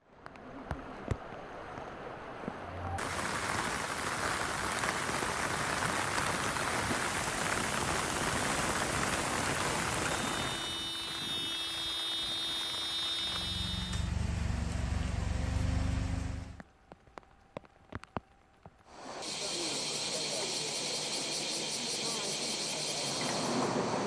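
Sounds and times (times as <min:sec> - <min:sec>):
heavy rain pouring: 0:03.0 - 0:13.9.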